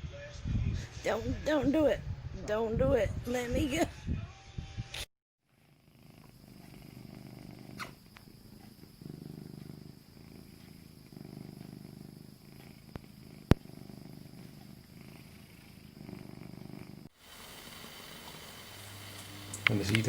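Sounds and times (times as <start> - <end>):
cat purring: 5.5 - 20.0.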